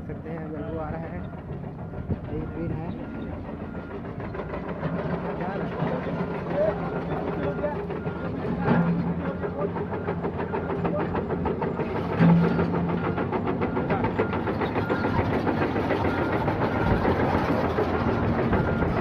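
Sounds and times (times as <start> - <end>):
diesel machinery clattering: 0.0 - 19.0.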